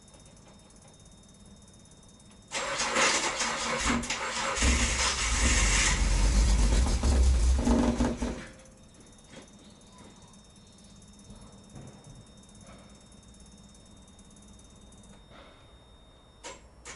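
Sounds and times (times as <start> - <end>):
car engine starting and running: 2.5 - 8.4.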